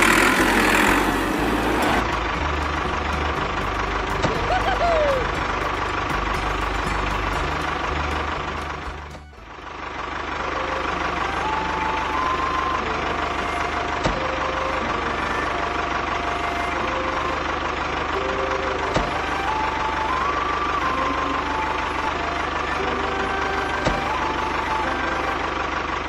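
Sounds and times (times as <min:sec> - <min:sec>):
small motor running: 0:00.0 - 0:07.2
simple tune of held notes: 0:00.0 - 0:26.0.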